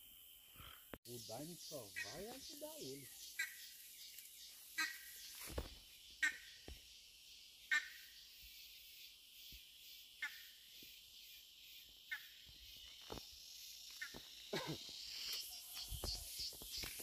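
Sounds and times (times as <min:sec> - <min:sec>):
bird squawking: 0:00.6 - 0:03.7, 0:04.8 - 0:05.2, 0:06.2 - 0:06.6, 0:07.7 - 0:08.1
steady high hiss: 0:01.1 - 0:17.0.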